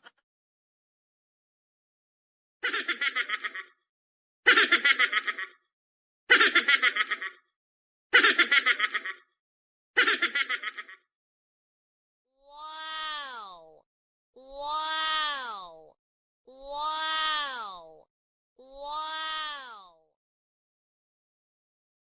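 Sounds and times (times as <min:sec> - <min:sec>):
chattering snicker laugh: 0:02.6 - 0:03.8, 0:04.5 - 0:05.6, 0:06.3 - 0:07.5, 0:08.2 - 0:09.3, 0:10.0 - 0:11.1
falling pitched cry: 0:12.5 - 0:13.8, 0:14.4 - 0:15.9, 0:16.6 - 0:18.0.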